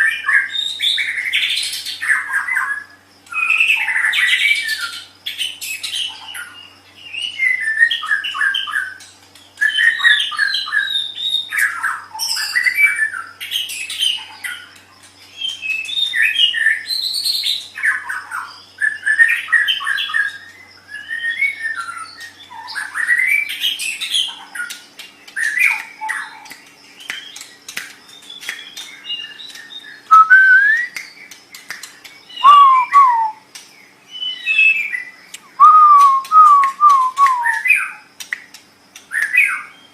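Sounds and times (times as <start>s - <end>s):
bird singing trills: 0.0s - 39.9s
bird whistled glides: 28.3s - 31.0s, 32.3s - 33.4s, 34.2s - 37.9s.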